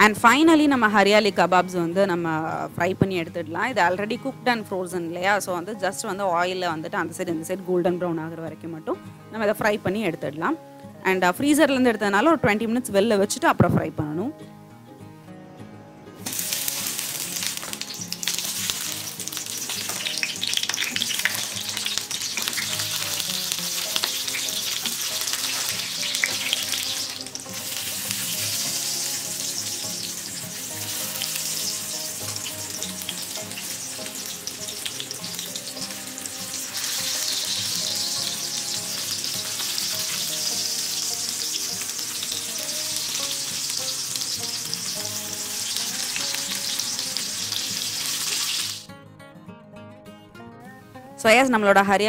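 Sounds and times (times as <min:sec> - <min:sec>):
patties sizzling in hot oil: 0:16.2 - 0:48.9.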